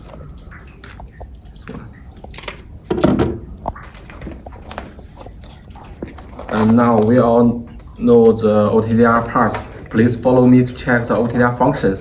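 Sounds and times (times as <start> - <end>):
knock: 2.9 - 3.4.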